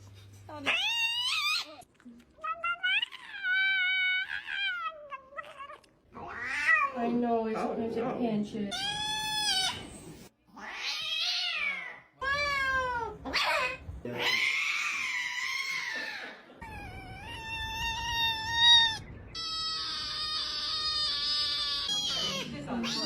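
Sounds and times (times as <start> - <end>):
cat meowing: 2.4 - 7.0, 10.5 - 16.0, 16.6 - 23.0.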